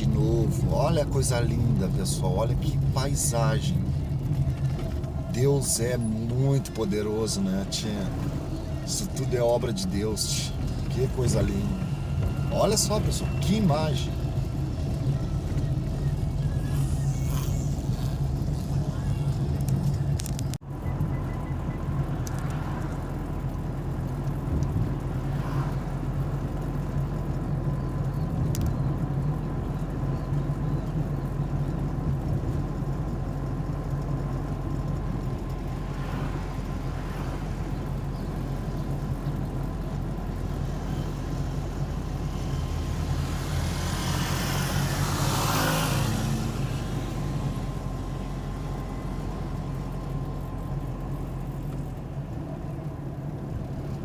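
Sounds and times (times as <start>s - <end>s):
car engine and road rumble: 0.0s - 54.0s
vehicle passing close by: 25.1s - 26.2s, 41.0s - 47.9s.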